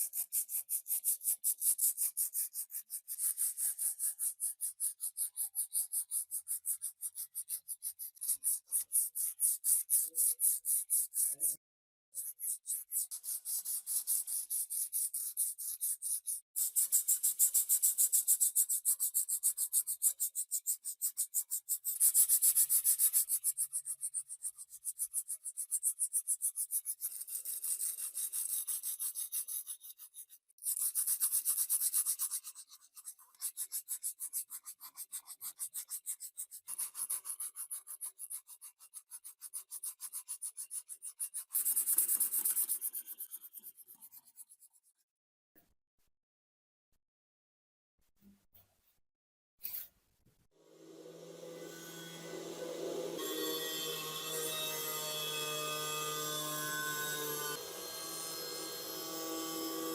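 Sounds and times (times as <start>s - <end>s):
abrasive scraping metal: 50.7s - 55.1s.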